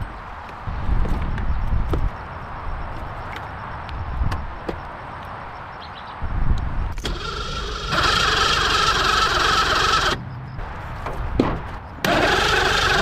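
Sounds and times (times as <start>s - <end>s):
motor starting and running: 7.0s - 10.2s, 12.0s - 13.0s.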